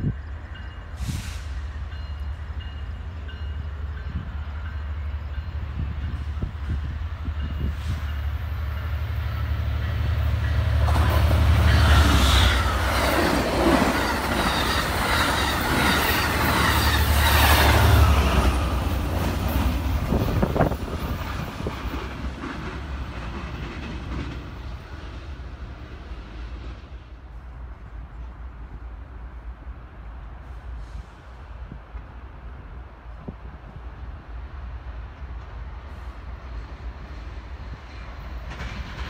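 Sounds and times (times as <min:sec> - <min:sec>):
train wheels clattering on rail: 0:00.0 - 0:27.0, 0:35.1 - 0:39.0
locomotive drone: 0:00.0 - 0:30.8.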